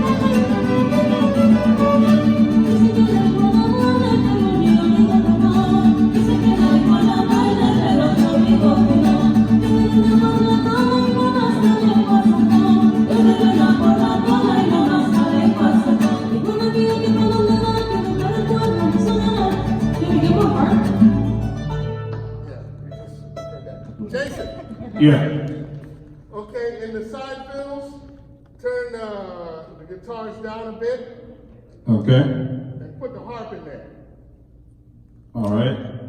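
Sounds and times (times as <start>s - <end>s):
string band playing over a pa: 0.0s - 3.1s.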